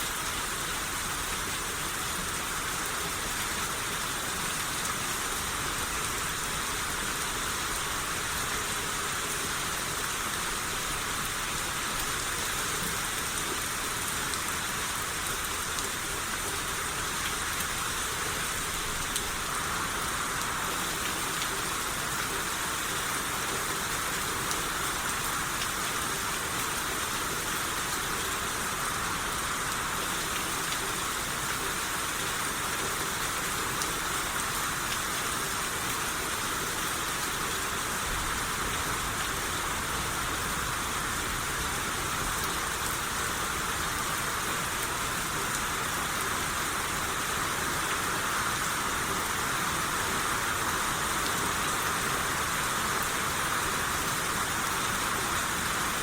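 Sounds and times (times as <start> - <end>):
rain pattering on surfaces: 0.0 - 56.0.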